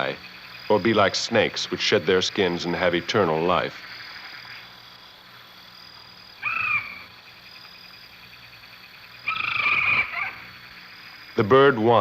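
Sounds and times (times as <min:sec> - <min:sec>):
high insect drone: 0:00.0 - 0:12.0
pitched animal call: 0:06.4 - 0:07.1, 0:09.2 - 0:10.6.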